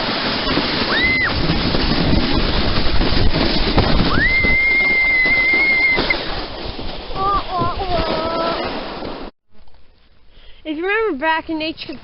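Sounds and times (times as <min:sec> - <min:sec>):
wind buffeting microphone: 0:00.0 - 0:09.3.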